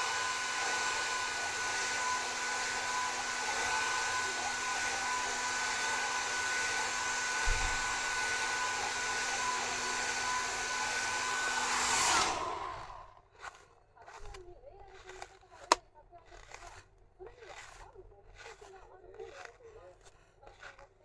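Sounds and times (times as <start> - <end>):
hair dryer blowing: 0.0 - 13.5.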